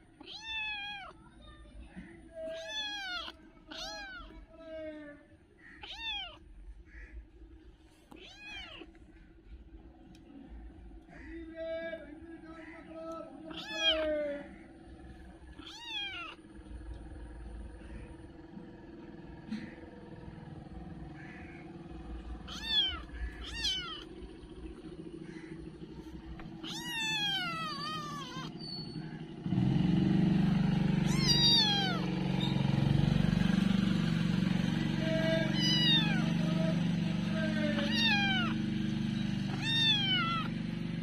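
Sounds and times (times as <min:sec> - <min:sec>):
kitten meowing: 0:00.2 - 0:01.2, 0:02.4 - 0:04.3, 0:05.8 - 0:06.5, 0:08.1 - 0:09.0, 0:13.4 - 0:14.5, 0:15.5 - 0:16.4, 0:22.4 - 0:24.1, 0:26.4 - 0:28.9, 0:31.0 - 0:32.6, 0:35.3 - 0:36.5, 0:37.6 - 0:38.6, 0:39.5 - 0:40.6
steady background hum: 0:05.4 - 0:29.2.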